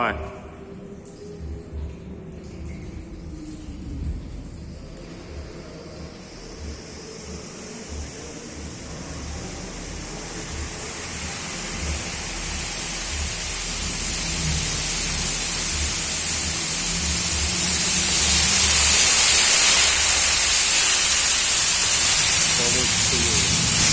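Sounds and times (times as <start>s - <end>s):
water spray hissing: 4.7s - 23.9s.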